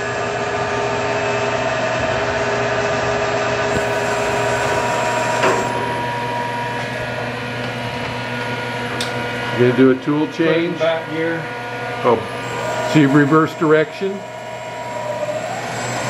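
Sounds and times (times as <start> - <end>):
milling machine whine: 0.0 - 16.0.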